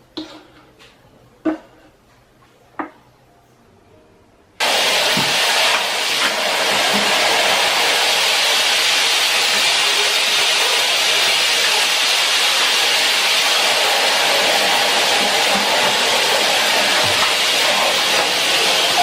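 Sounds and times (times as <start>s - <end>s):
loud steady rushing hiss: 4.6s - 19.0s.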